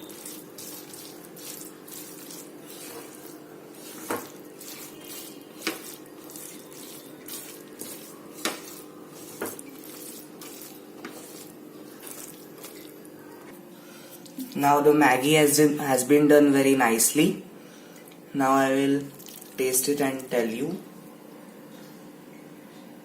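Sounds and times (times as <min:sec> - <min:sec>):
spoon stirring noodles: 0:00.0 - 0:13.3.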